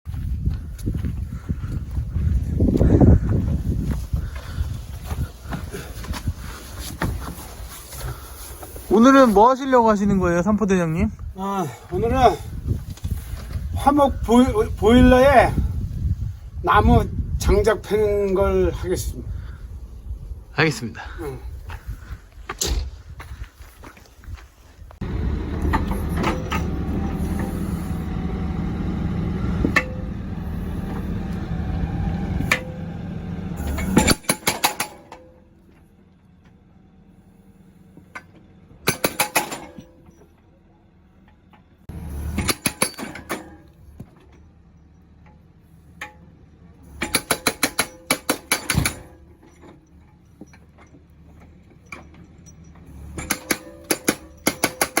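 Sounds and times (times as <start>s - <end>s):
excavator engine running: 24.9s - 55.0s.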